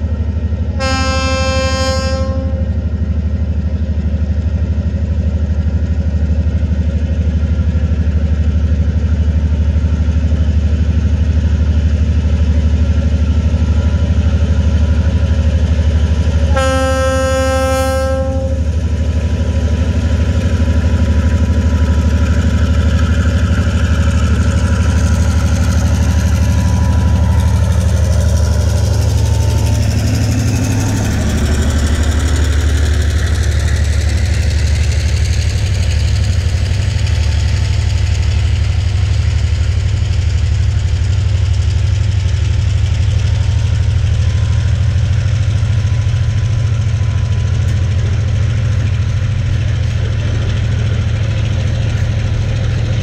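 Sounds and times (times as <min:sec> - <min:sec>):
diesel engine: 0:00.0 - 0:53.0
locomotive horn blast: 0:00.8 - 0:02.8, 0:16.5 - 0:18.8
wheels rumbling: 0:18.2 - 0:53.0
crossing warning bell ringing: 0:24.8 - 0:30.1.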